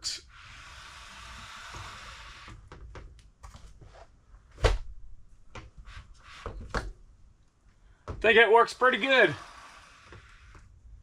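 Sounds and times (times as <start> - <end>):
window blind sliding: 0.3 - 2.6, 8.7 - 10.7.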